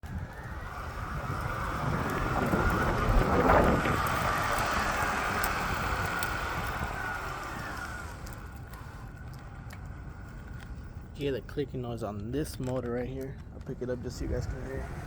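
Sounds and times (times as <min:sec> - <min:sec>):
motor with rough whine: 0:00.0 - 0:11.1.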